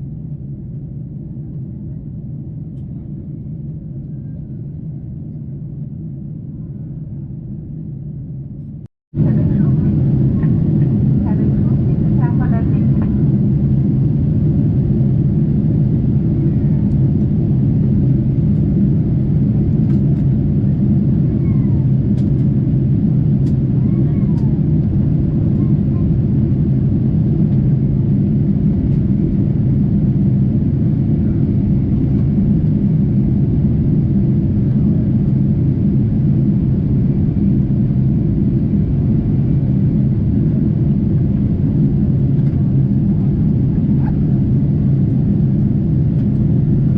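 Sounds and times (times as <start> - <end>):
airplane cabin rumble: 0.0 - 46.9.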